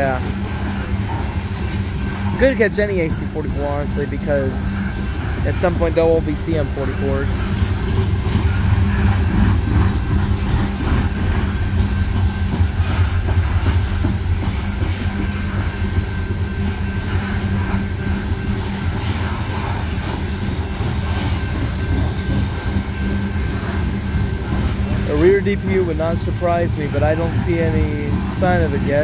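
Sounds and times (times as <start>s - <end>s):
freight train wheels rumbling on rail: 0.0s - 29.0s.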